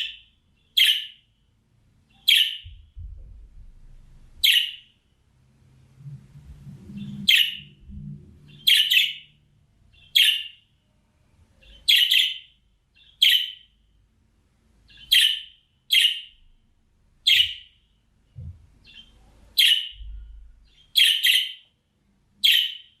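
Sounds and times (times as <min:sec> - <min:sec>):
budgerigar chirping: 0:00.0 - 0:01.3, 0:02.1 - 0:02.7, 0:04.4 - 0:05.0, 0:07.2 - 0:07.7, 0:08.5 - 0:10.7, 0:11.6 - 0:13.8, 0:14.9 - 0:16.4, 0:17.2 - 0:17.9, 0:18.8 - 0:21.7, 0:22.4 - 0:23.0.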